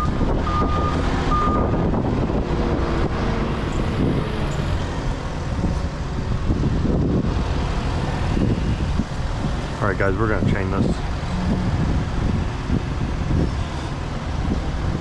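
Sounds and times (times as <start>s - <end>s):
reversing alarm beeping: 0.0s - 1.8s
low engine rumble: 0.0s - 15.0s
wind noise on microphone: 0.0s - 15.0s.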